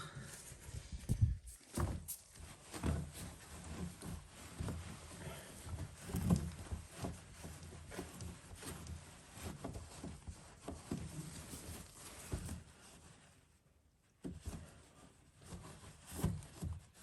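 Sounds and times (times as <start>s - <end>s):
cloth wiping and scrubbing: 0.2s - 13.6s.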